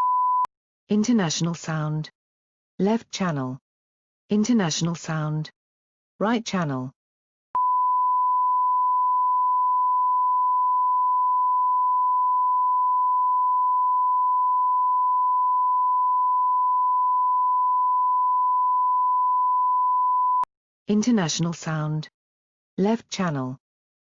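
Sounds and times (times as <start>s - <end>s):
steady sine tone: 7.6s - 20.5s.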